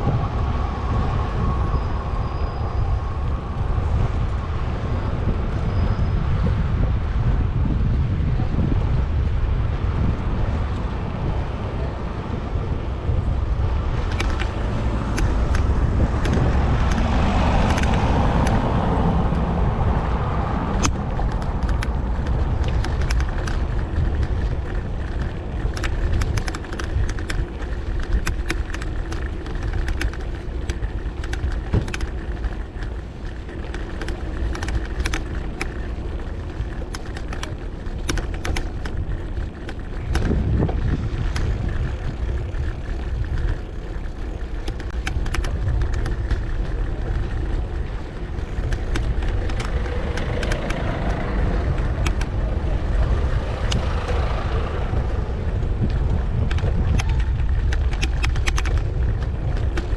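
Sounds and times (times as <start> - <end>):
wind on microphone: 0.0 - 59.9
car passing: 11.8 - 57.5
sharp irregular clicks: 14.0 - 19.4, 20.8 - 59.9.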